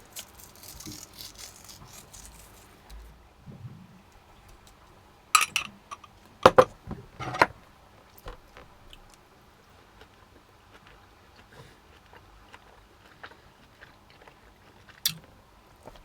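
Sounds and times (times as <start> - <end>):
cutlery clinking on a plate: 5.4 - 7.5.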